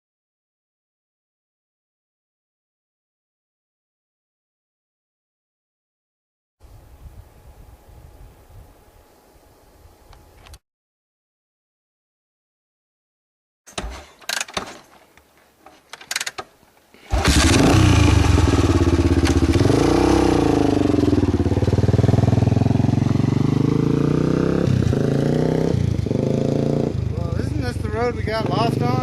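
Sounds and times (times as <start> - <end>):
knocks and clicks: 13.7 - 15.3
motorcycle engine revving: 17.1 - 29.0.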